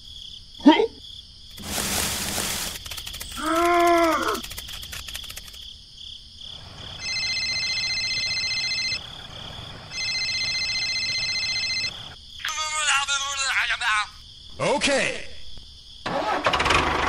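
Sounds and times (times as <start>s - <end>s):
insects trilling: 0.0s - 16.1s
faint pulsing chirping: 2.7s - 12.4s.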